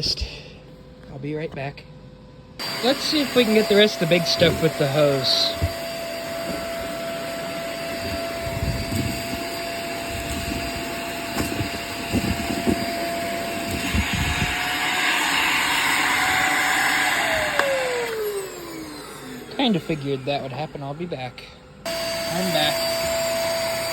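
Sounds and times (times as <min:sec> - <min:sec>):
debris rattling in vacuum: 0:02.6 - 0:20.5
vacuum cleaner running: 0:02.6 - 0:23.9.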